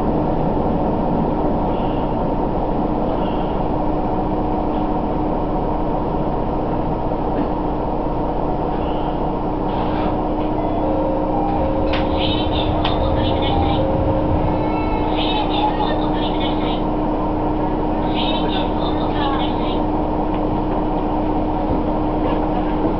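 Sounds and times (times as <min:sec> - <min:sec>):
constant hum: 0:00.0 - 0:22.9
railcar engine and wheels rumbling: 0:00.0 - 0:22.9.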